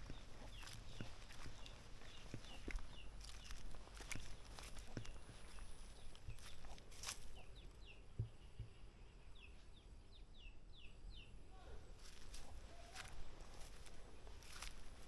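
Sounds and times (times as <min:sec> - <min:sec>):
soft footsteps on path: 0:00.0 - 0:08.3, 0:11.9 - 0:15.0
small bird chirping: 0:00.0 - 0:11.4.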